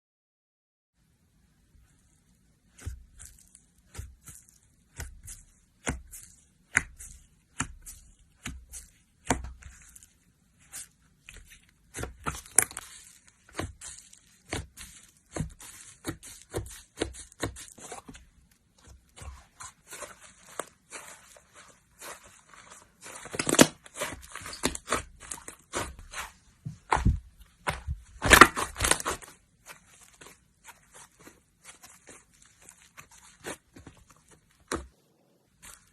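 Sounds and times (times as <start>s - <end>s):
slime squished by hand: 18.8s - 34.9s.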